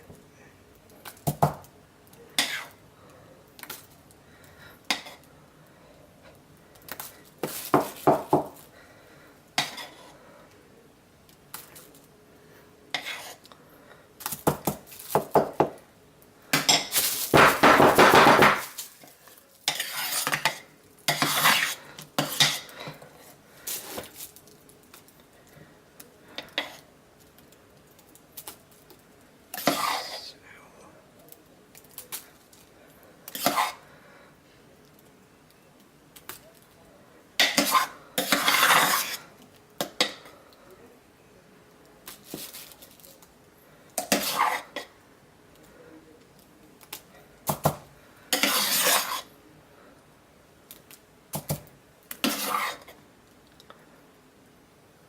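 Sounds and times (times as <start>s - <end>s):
utensil scraping pot: 12.9s - 13.4s, 19.7s - 22.7s, 29.5s - 30.3s, 33.3s - 33.8s, 37.4s - 39.3s, 44.0s - 44.9s, 48.3s - 49.3s, 52.2s - 53.0s.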